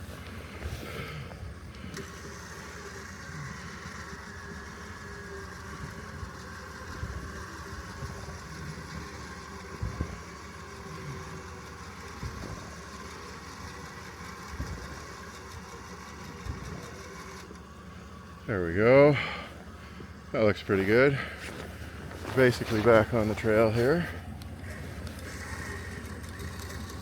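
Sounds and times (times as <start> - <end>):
faint steady whine: 0.0 - 27.0
vehicle engine idling: 0.0 - 27.0.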